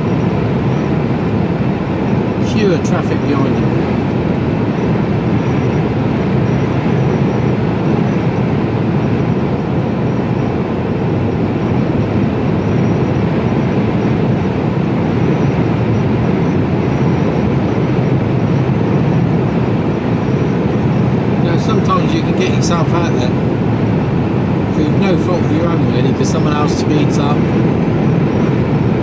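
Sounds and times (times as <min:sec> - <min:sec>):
lorry engine: 0:00.0 - 0:06.0, 0:16.3 - 0:29.0
road noise: 0:00.0 - 0:29.0.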